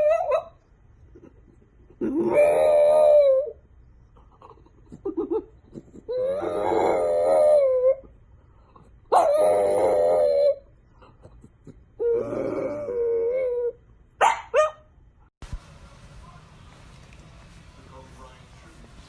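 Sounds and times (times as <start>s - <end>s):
dog howling: 2.1s - 3.6s, 6.1s - 8.1s, 9.2s - 10.6s, 12.0s - 13.8s.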